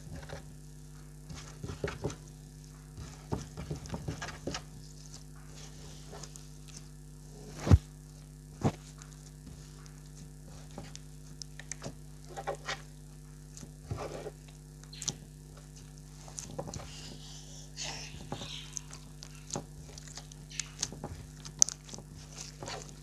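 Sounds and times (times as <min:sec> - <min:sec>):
electrical hum: 0:00.0 - 0:23.0
slime squelching: 0:13.5 - 0:23.0.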